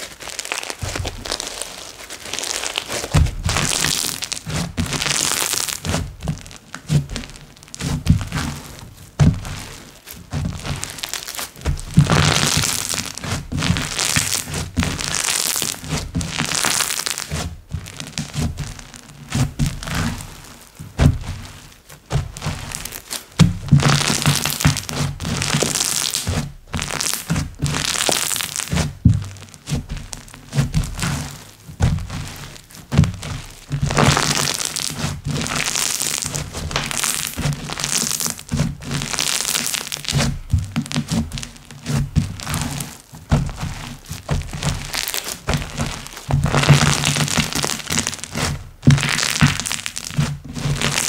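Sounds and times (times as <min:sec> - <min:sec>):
slime crackling and popping: 0:00.0 - 0:51.0
soft thuds of slime: 0:20.9 - 0:23.9.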